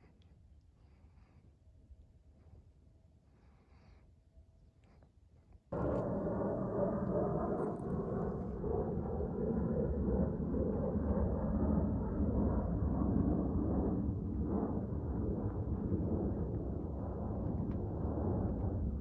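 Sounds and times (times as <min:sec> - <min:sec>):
distant thunder rumbling: 0:05.7 - 0:19.0.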